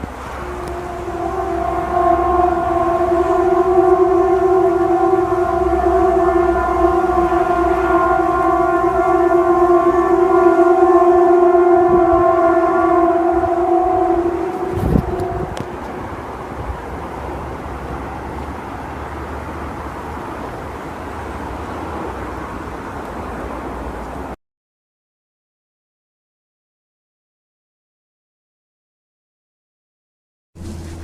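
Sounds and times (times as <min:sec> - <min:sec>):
loud horn-like drone: 0:00.0 - 0:24.4.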